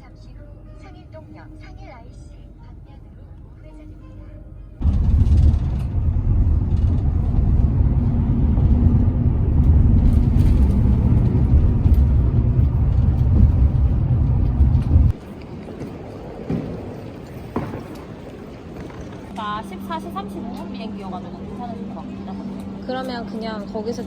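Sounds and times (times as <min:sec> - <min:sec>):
vehicle engine and road noise: 0:04.8 - 0:24.0.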